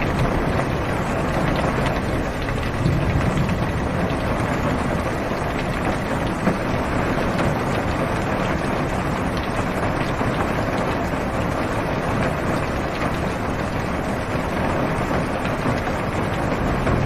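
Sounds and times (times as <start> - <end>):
rain on car roof: 0.0 - 17.0.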